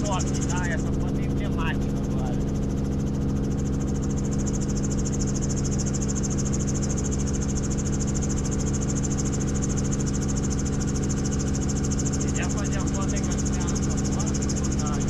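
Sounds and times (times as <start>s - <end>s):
fast-pulsing high whine: 0.0s - 15.0s
helicopter engine and rotor drone: 0.0s - 15.0s.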